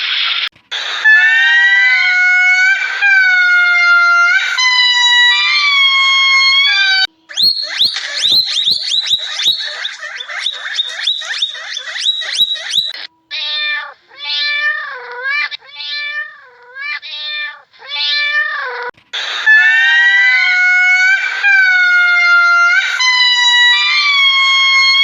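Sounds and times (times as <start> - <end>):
short high chirps: 7.3 - 13.0
cat meowing: 8.4 - 18.9.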